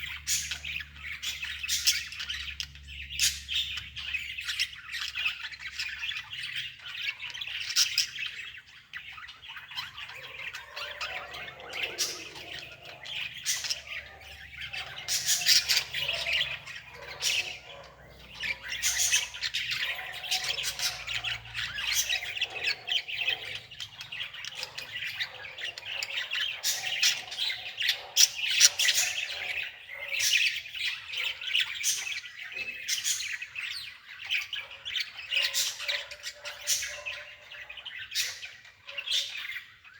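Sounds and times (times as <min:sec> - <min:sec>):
birds chirping and squawking: 0:00.0 - 0:39.9.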